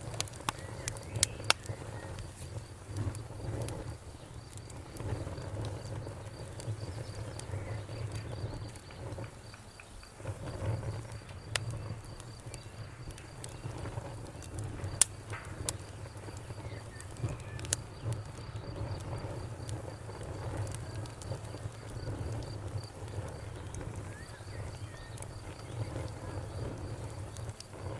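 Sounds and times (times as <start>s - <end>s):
low rumble of fire: 0.0s - 27.9s
wood fire crackling and popping: 0.0s - 27.9s
cricket chirping: 0.4s - 27.9s.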